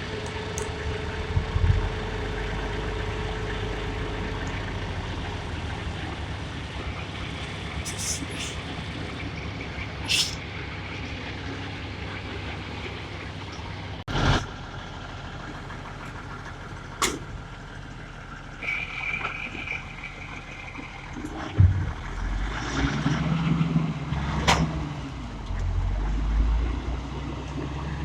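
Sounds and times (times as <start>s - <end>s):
heavy truck engine running: 0.0s - 28.0s
thump: 21.6s - 22.1s.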